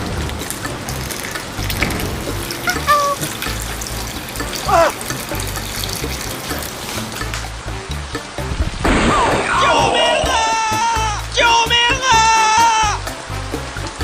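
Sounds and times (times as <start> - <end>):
music: 0.0 - 14.0
water running: 0.0 - 14.0
short squeaky sounds: 2.6 - 3.3.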